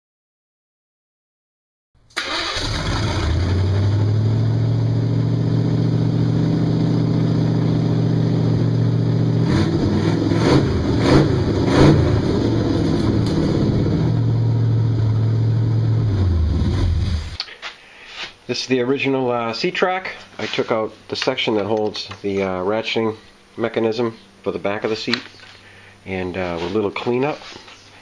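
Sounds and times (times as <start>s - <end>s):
car engine starting and idling: 2.1s - 17.4s.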